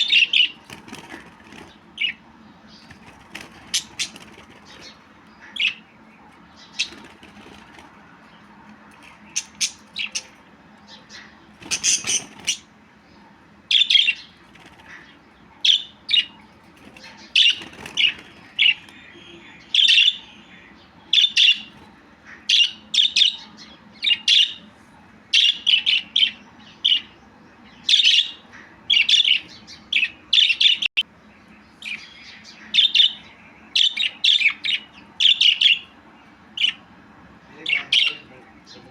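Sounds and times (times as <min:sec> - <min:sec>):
budgerigar chirping: 0:00.0 - 0:07.9, 0:09.0 - 0:12.7, 0:13.7 - 0:24.6.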